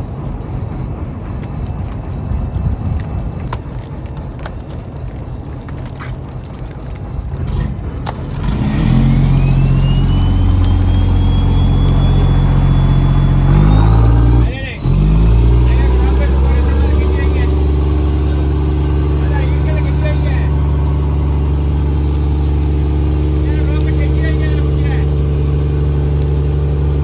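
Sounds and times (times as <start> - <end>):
boat engine rumbling: 0.0 - 27.0
engine whine rising: 7.3 - 27.0.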